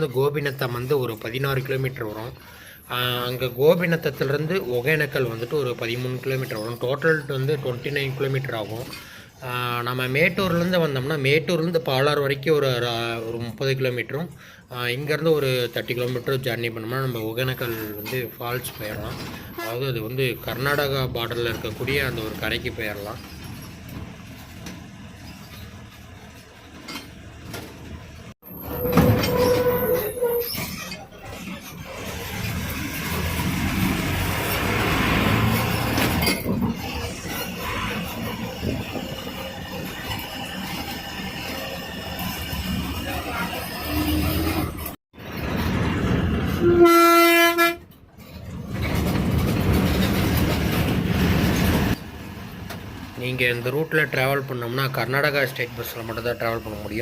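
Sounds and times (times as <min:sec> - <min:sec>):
bus rumbling and rattling: 0:00.0 - 0:57.0
bus horn blast: 0:46.6 - 0:47.9.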